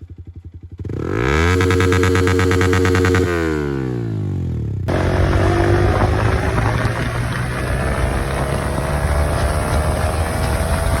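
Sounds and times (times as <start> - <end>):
motorcycle engine running: 0.0 - 11.0
wind rush over microphone: 4.9 - 11.0.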